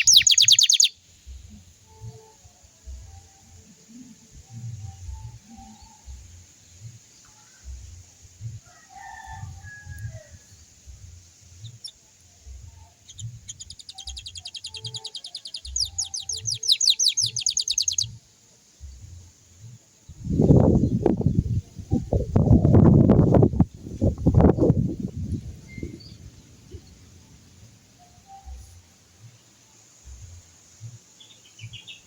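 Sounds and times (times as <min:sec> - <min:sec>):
canary singing trill: 0:00.0 - 0:02.4, 0:11.0 - 0:18.2, 0:31.1 - 0:32.0
faint bird chirps: 0:00.0 - 0:02.4, 0:11.6 - 0:18.2, 0:25.4 - 0:32.0.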